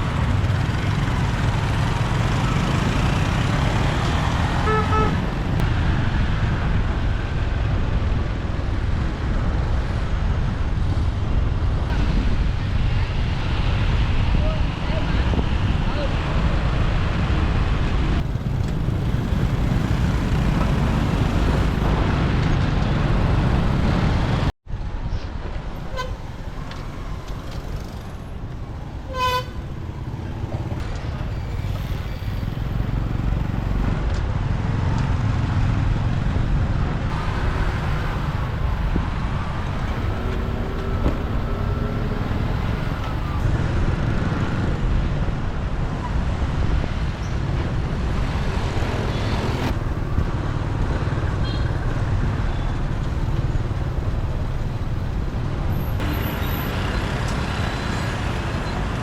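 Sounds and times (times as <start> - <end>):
motorbike engine and road rumble: 0.0 - 59.0
vehicle horn toot: 1.0 - 5.6, 25.9 - 26.4, 29.1 - 29.6.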